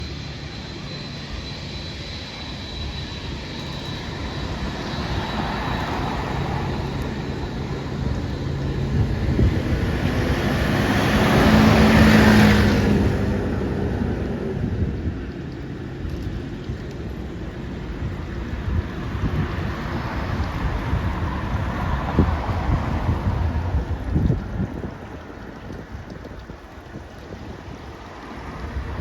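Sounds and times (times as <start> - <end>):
faint high whine: 0.0 - 10.4
jet engines roaring: 0.0 - 29.0.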